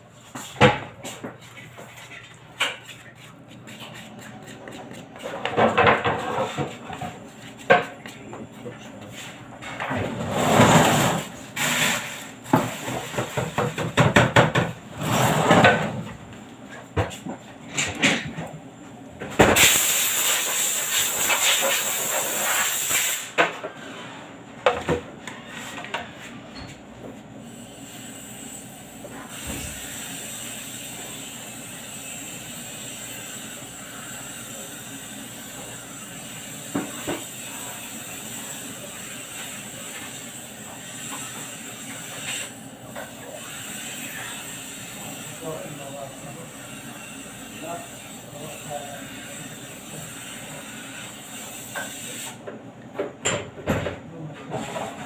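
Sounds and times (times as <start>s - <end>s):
loud hiss: 19.5s - 23.4s.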